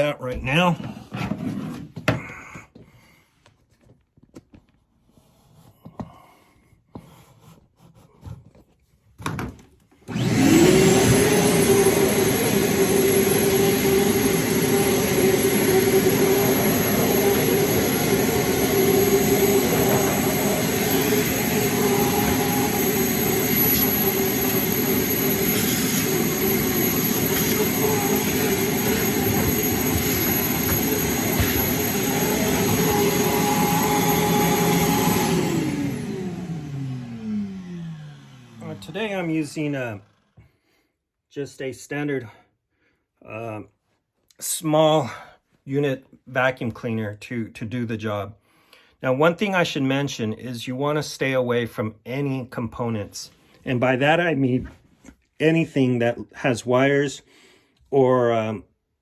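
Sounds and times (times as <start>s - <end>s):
vacuum cleaner motor whine: 10.1s - 40.2s.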